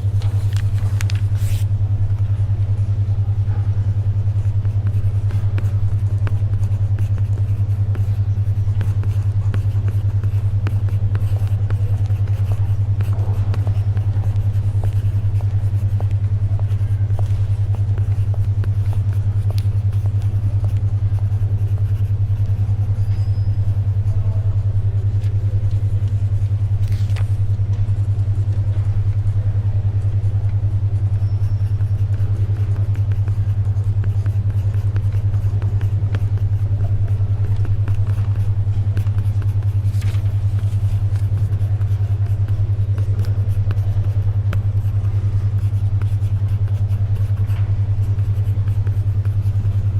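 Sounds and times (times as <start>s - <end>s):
paper rustling: 0.0s - 1.7s, 26.8s - 27.4s, 39.1s - 41.4s
pulsing low hum: 0.0s - 49.9s.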